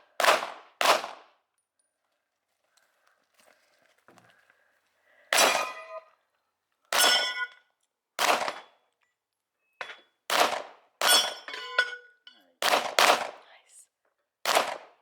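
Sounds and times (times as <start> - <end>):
pistol shots: 0.0 - 1.4, 5.3 - 5.9, 8.2 - 8.7, 10.3 - 11.3, 12.6 - 13.4, 14.4 - 15.0
steel target clanging: 5.4 - 6.1, 7.0 - 7.6, 11.0 - 12.2.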